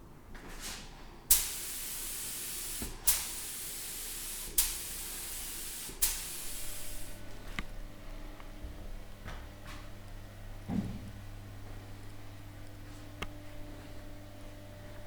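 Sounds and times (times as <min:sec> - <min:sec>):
pressurised spray hissing: 0:01.3 - 0:07.2.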